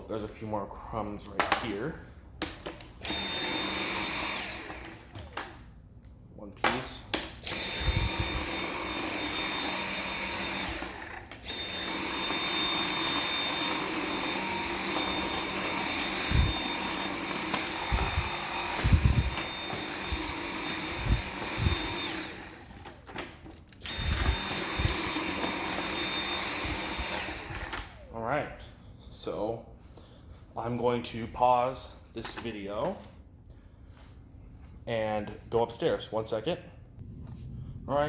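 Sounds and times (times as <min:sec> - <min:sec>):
vacuum cleaner motor whine: 0:03.0 - 0:05.6, 0:07.4 - 0:28.2
low thumps: 0:37.0 - 0:38.0.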